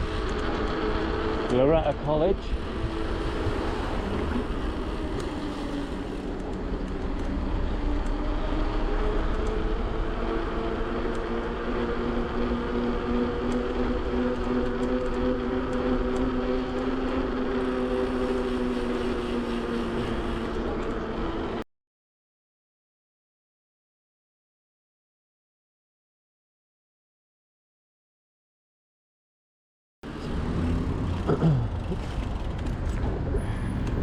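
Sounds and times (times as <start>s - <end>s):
road and wind noise: 0.0s - 21.6s, 30.0s - 34.0s
electric motor whine: 2.4s - 21.6s.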